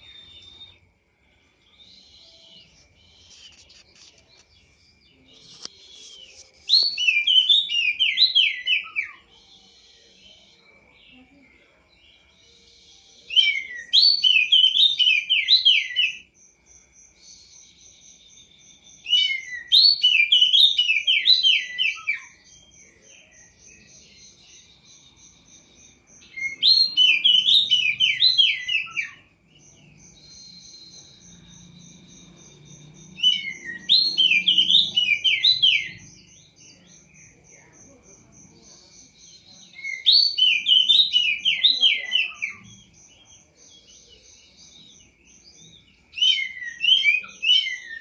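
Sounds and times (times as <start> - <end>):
songbird whistling: 0.0 - 0.9, 5.4 - 10.1, 12.8 - 16.3, 19.0 - 23.1, 26.2 - 29.3, 30.2 - 36.5, 45.6 - 48.0.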